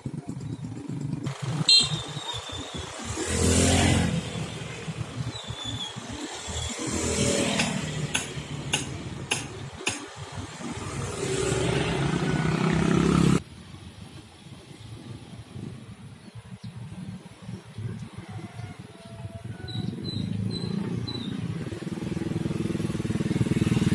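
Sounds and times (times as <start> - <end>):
motorcycles passing: 0.0 - 13.5, 14.4 - 23.9
cars passing: 1.3 - 13.5, 17.0 - 23.9.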